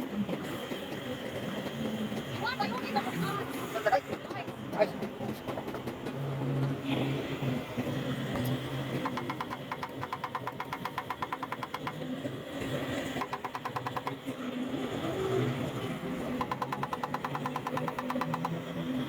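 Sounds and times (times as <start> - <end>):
fast regular ticking: 9.0 - 12.0, 13.2 - 14.3, 16.4 - 18.6.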